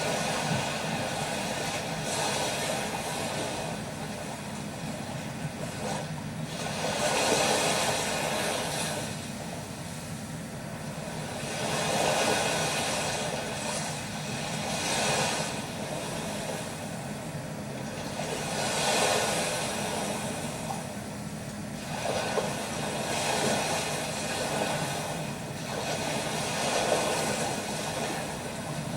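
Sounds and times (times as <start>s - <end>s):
sea waves washing onto shore: 0.0s - 28.9s.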